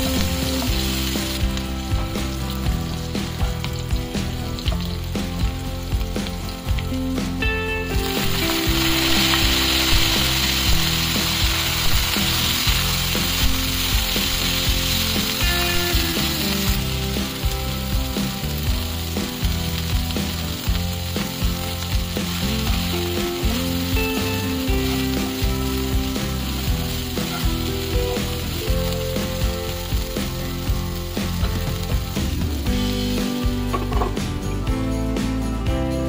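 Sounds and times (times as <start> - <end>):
vegetables sizzling in hot oil: 0.0 - 34.7.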